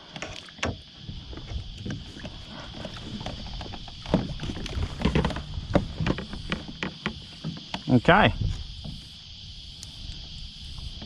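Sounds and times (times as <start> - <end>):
knocks and water splashing: 0.0 - 9.0
high-pitched hiss: 5.0 - 11.0.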